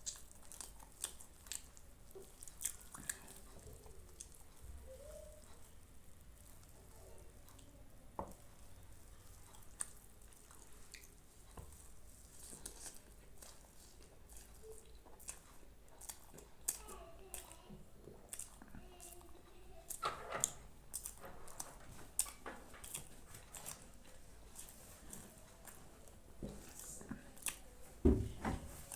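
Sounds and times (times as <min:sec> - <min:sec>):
person chewing food: 0:00.0 - 0:28.9
wet mouth clicks: 0:18.3 - 0:19.2, 0:19.9 - 0:23.8.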